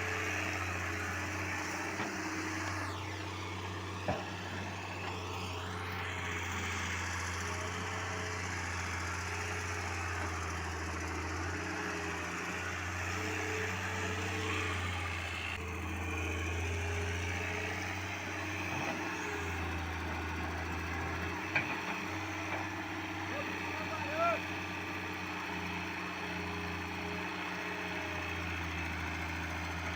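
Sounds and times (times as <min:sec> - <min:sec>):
diesel engine humming: 0:00.0 - 0:29.9.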